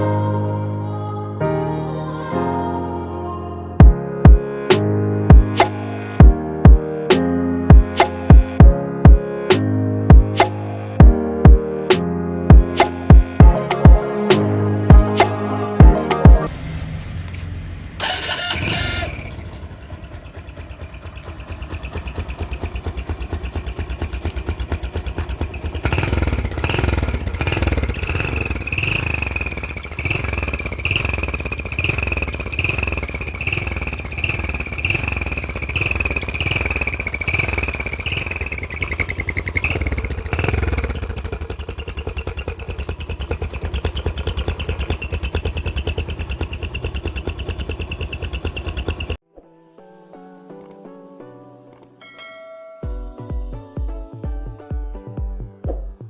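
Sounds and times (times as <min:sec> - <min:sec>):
motorcycle engine throttle blips: 0:12.8 - 0:49.2
motorcycle engine idling: 0:14.9 - 0:49.2.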